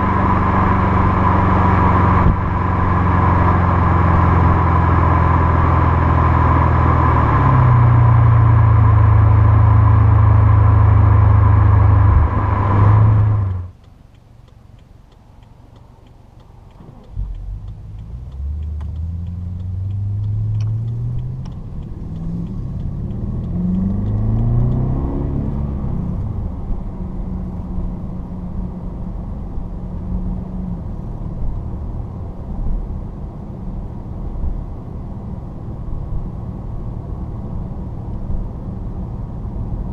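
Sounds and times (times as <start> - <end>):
car engine droning: 0.0 - 39.9
road noise: 0.0 - 39.9.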